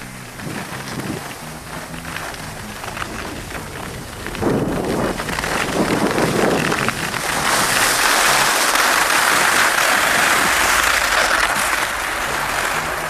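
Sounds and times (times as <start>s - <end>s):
ski edges scraping snow: 0.0s - 13.0s.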